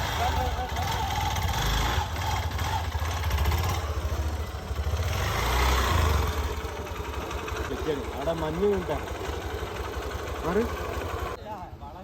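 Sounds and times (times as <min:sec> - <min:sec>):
motorcycle engine humming: 0:00.0 - 0:12.0.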